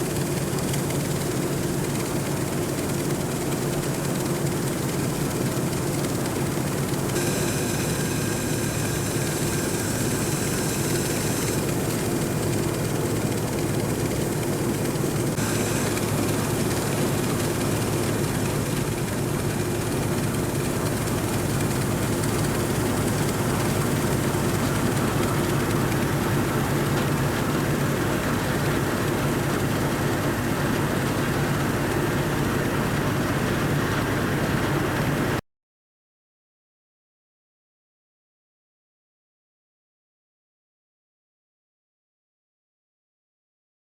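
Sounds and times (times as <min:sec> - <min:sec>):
combine harvester engine drone: 0:00.0 - 0:35.4
high-pitched whine: 0:07.1 - 0:13.7.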